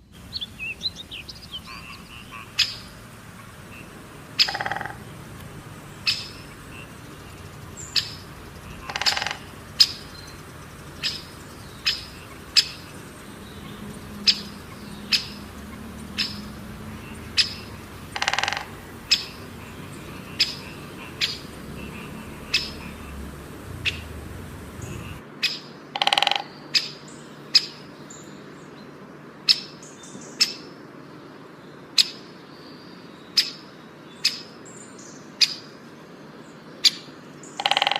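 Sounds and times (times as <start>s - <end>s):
harsh bird calls: 0.0s - 28.0s, 36.8s - 37.9s
bird chirping: 0.0s - 28.9s.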